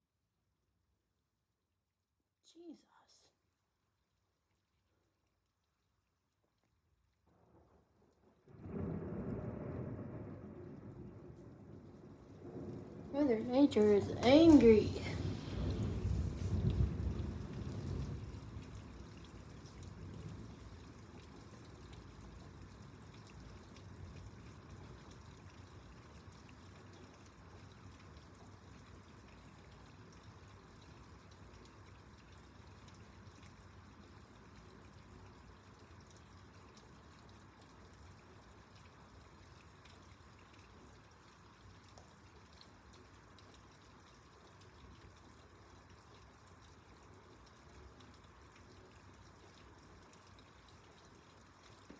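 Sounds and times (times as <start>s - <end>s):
faint rain: 1.1s - 51.9s
low thunder rumble: 8.5s - 19.2s
water pouring and dripping: 10.8s - 51.9s.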